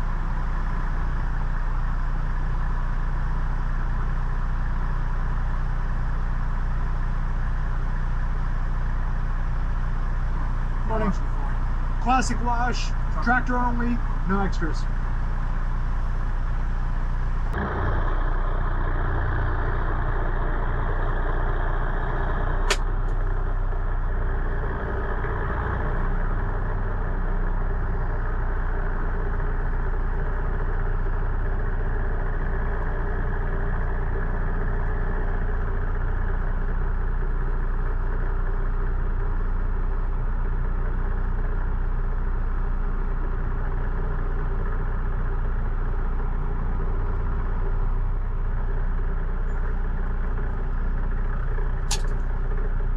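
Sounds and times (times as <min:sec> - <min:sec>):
diesel truck engine running: 0:00.0 - 0:52.9
sharp click: 0:51.9 - 0:52.2.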